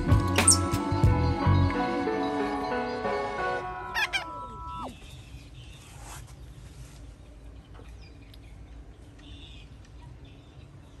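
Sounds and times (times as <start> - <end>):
faint bird chirps: 4.0 - 11.0.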